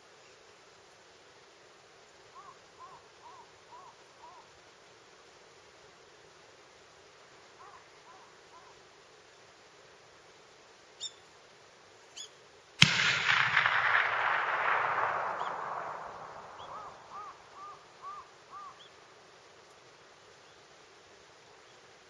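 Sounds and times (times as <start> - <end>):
bird calling: 2.3 - 4.5, 12.1 - 19.1
rifle shot echoing: 12.8 - 18.6.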